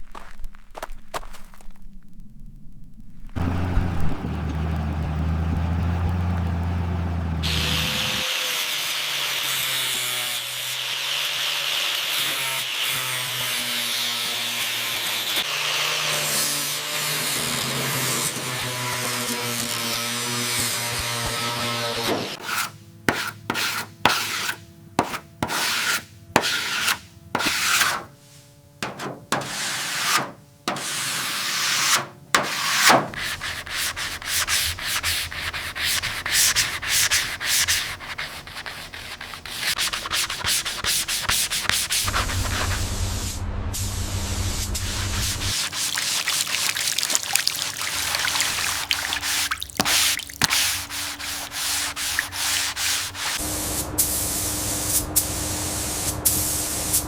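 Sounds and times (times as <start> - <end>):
low hum: 0.0 - 7.5, 42.1 - 45.5
hand sanding rubbing strokes: 22.4 - 43.1, 44.6 - 53.5.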